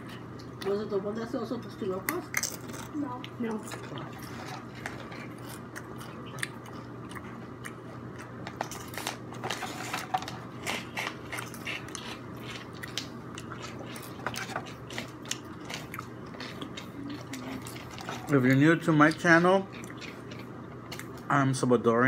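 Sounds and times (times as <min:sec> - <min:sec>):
chewing and crunching food: 0:00.0 - 0:00.9, 0:02.0 - 0:21.3.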